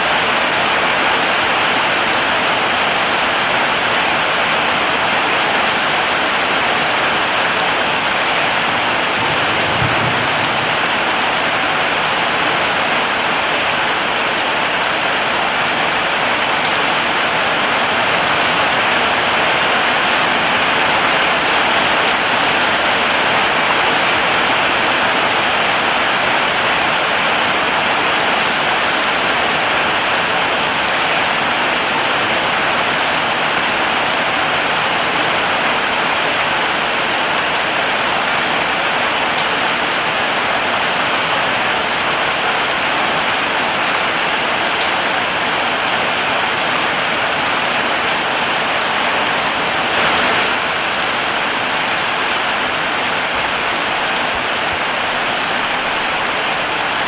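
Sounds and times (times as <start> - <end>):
heavy rain hissing: 0.0 - 57.0.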